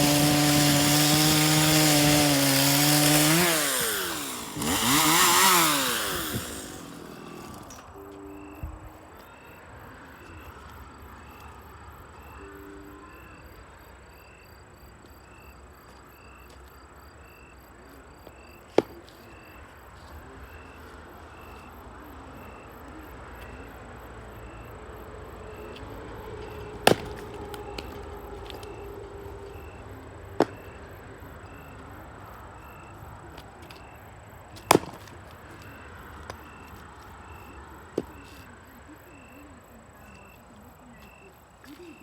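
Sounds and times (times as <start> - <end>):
axe splitting firewood: 0.0 - 7.9, 18.8 - 19.0, 26.8 - 28.7, 30.4 - 30.6, 34.5 - 35.6.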